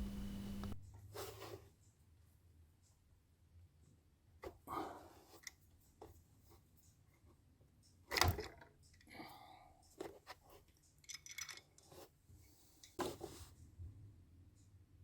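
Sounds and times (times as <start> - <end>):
metal tools clicking and knocking: 10.8 - 12.0.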